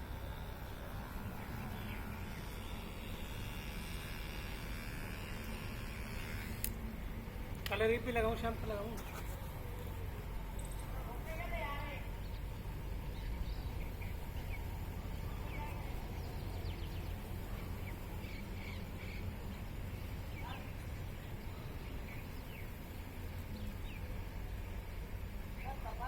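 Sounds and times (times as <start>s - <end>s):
small birds chirping: 0.0s - 3.6s, 7.7s - 26.0s
steady low rumble: 6.7s - 26.0s.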